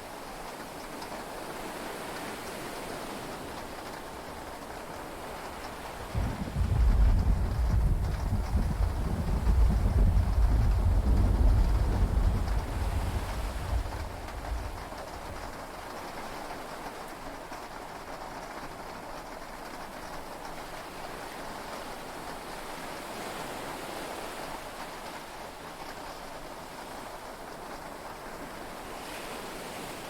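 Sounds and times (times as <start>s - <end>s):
sea waves: 0.0s - 30.0s
steady rain: 0.0s - 30.0s
thunder rumble: 6.1s - 15.6s.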